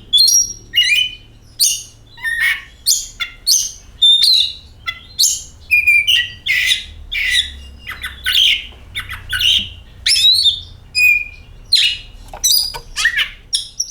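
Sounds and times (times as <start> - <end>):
bird singing whistles and scratchy notes: 0.1 - 13.9.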